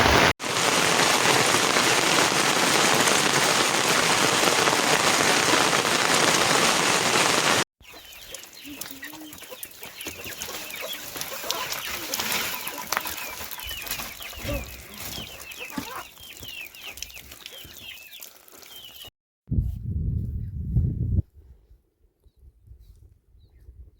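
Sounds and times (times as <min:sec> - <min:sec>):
heavy rain pouring: 0:00.0 - 0:09.4
chickens clucking: 0:07.8 - 0:18.3.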